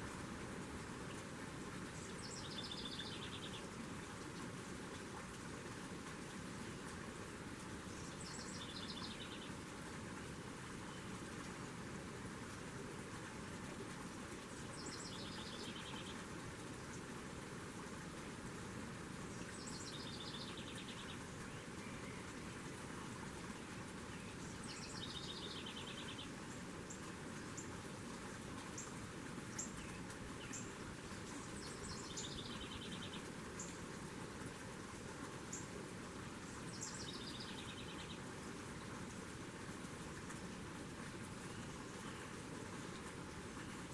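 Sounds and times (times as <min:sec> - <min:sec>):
songbird trilling song: 0:02.0 - 0:03.6, 0:08.0 - 0:09.5, 0:14.7 - 0:16.2, 0:19.4 - 0:22.4, 0:24.2 - 0:26.3, 0:29.5 - 0:33.8, 0:36.5 - 0:38.2.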